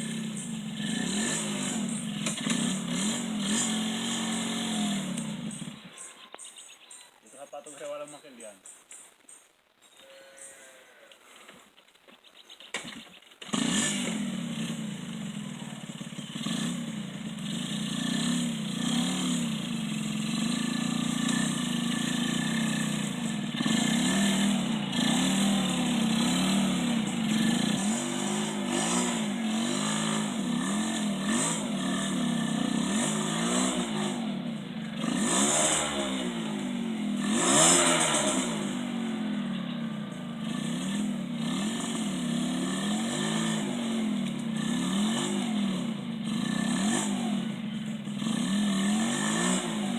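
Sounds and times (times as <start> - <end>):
motocross bike engines revving: 0.0 - 6.2, 13.4 - 49.9.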